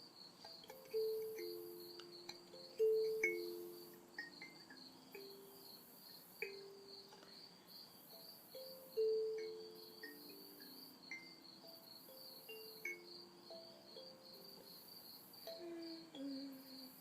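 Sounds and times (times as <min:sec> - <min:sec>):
cicada-like buzz: 0:00.0 - 0:17.0
night insects trilling: 0:00.0 - 0:17.0
soft low melody: 0:00.4 - 0:05.8, 0:15.4 - 0:17.0.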